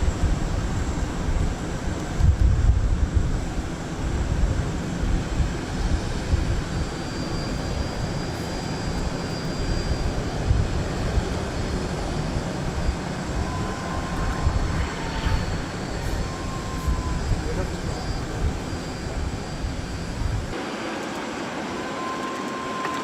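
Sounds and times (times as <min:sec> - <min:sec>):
jet engines rumbling: 0:00.0 - 0:23.0
faint high whine: 0:05.6 - 0:23.0.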